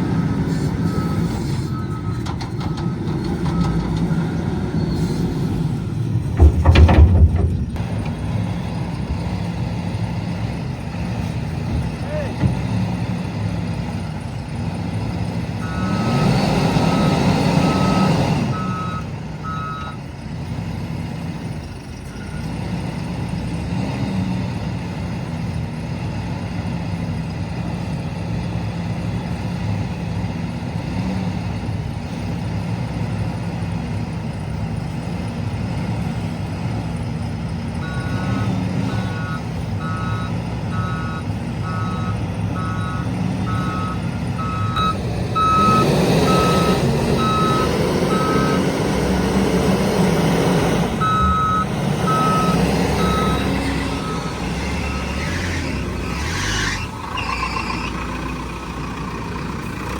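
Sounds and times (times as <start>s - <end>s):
diesel loader engine revving: 0.0s - 59.9s
reversing alarm beeping: 15.6s - 20.0s, 37.8s - 48.7s, 51.0s - 55.2s.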